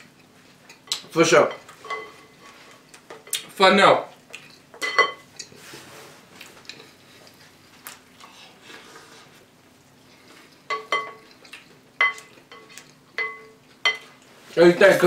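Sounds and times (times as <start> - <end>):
spoon clinking against bowl: 0.7 - 2.4, 4.5 - 5.5, 10.7 - 11.4, 12.0 - 14.2.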